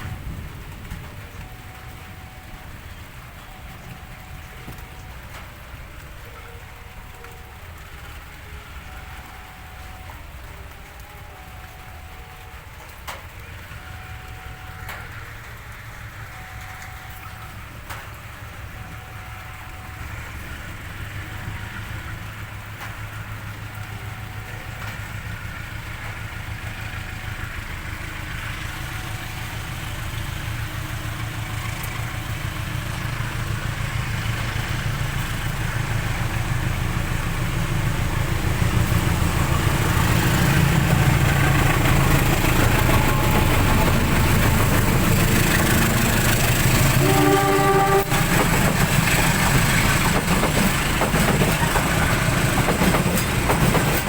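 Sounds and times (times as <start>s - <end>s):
diesel train engine humming: 0.0s - 54.0s.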